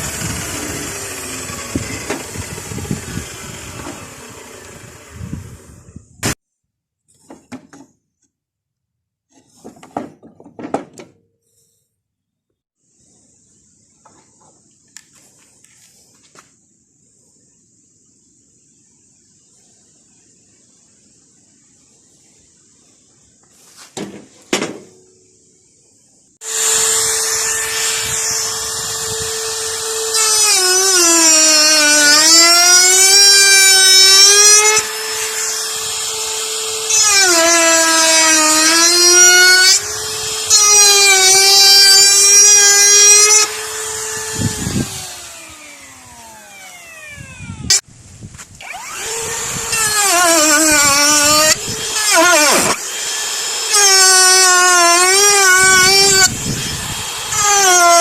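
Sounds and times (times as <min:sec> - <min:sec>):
power tool cutting wood: 0:00.0 - 0:05.9, 0:26.4 - 0:47.8, 0:48.6 - 0:58.0.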